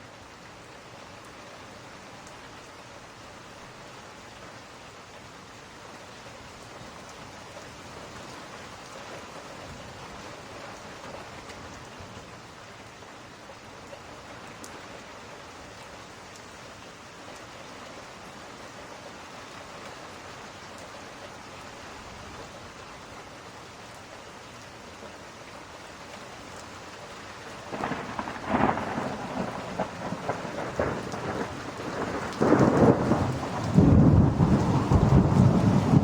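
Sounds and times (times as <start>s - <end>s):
steady rain falling: 0.0s - 36.0s
thunder rumbling: 27.7s - 36.0s.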